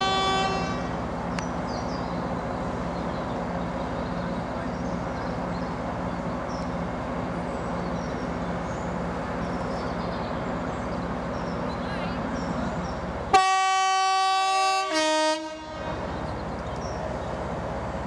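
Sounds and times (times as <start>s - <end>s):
train signal note: 0.0s - 1.0s, 13.3s - 16.0s
train engine rumble: 0.0s - 18.0s.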